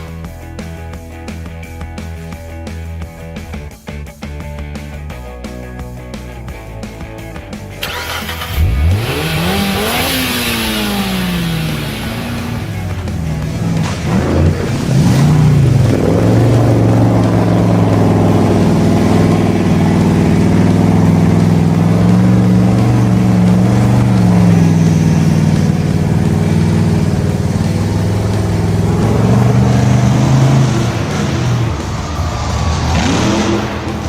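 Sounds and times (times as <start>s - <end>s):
engine running at high revs: 6.8s - 34.0s.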